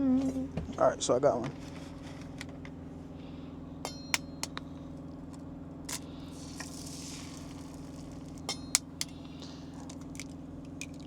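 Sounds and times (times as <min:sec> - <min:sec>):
steady low hum: 0:00.0 - 0:11.0
utensils clicking and tapping: 0:03.9 - 0:04.7, 0:05.9 - 0:11.0.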